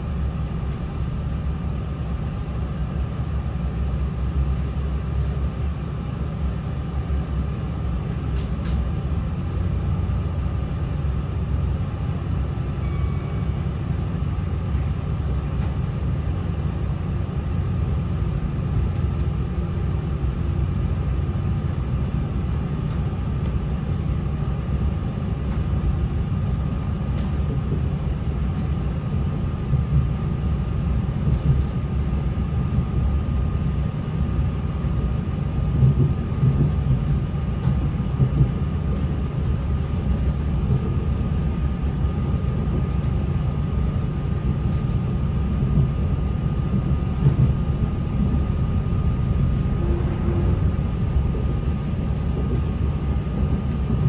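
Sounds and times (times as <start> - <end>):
diesel train rumble: 0.0 - 54.0
faint whine: 30.2 - 54.0.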